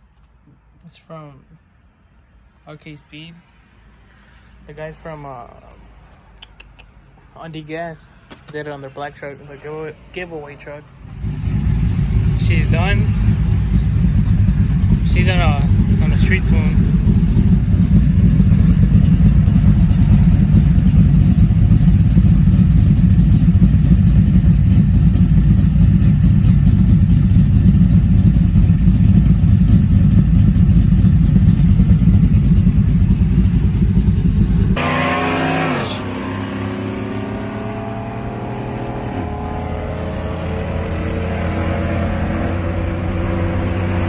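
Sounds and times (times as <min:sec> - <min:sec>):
truck engine idling: 0:11.0 - 0:34.8
truck engine revving: 0:11.0 - 0:44.0.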